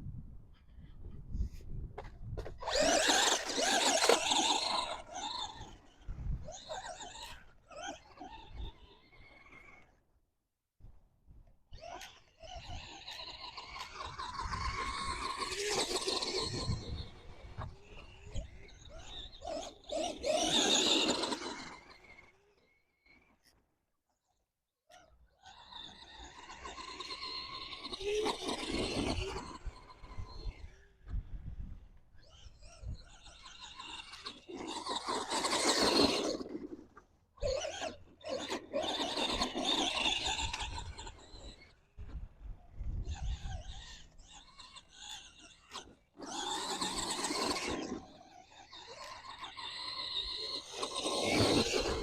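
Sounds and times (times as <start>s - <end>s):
electric motor whining: 2.4s - 8.7s, 48.9s - 52.0s
electric motor and gears whining: 2.4s - 9.9s, 11.8s - 22.5s, 25.9s - 31.1s, 32.2s - 52.0s
tyres churning dirt: 2.4s - 9.9s, 11.8s - 22.4s, 25.7s - 30.9s, 32.2s - 42.0s, 43.6s - 52.0s.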